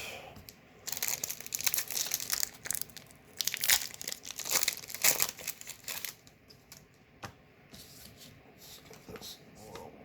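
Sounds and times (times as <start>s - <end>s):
foil wrapper crinkling and tearing: 0.8s - 6.8s.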